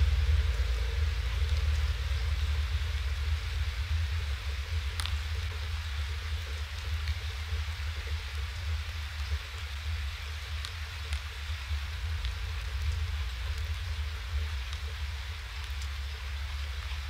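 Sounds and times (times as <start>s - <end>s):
low rumble: 0.0s - 17.0s
rain hiss: 0.0s - 17.0s
faint drop ticks: 4.9s - 5.6s.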